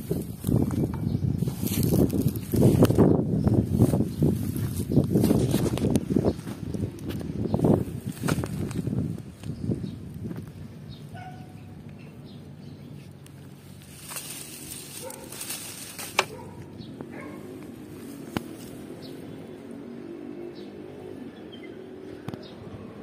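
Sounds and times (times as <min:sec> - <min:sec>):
rustling: 0:13.0 - 0:16.7.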